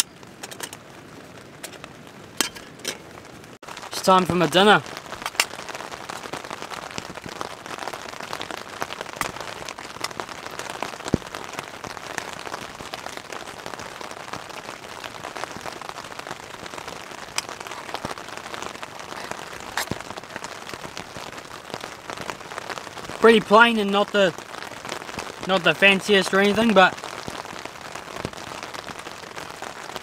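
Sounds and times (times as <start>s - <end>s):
rain pattering on tent: 0.0s - 30.0s.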